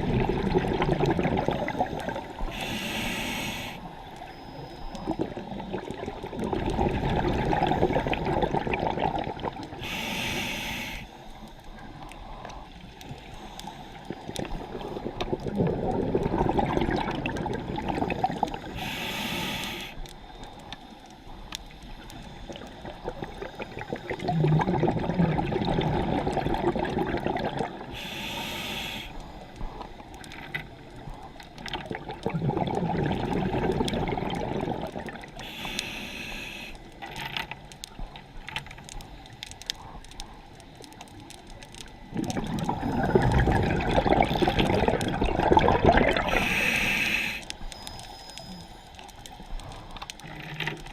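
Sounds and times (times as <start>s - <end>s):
exhaled bubbles gurgling: 0.0s - 11.0s, 11.7s - 19.9s, 21.7s - 38.3s, 38.9s - 50.9s
regulator inhalation hiss: 1.7s - 4.1s, 9.8s - 15.0s, 18.6s - 20.7s, 27.8s - 30.0s, 35.4s - 37.0s, 46.2s - 49.9s.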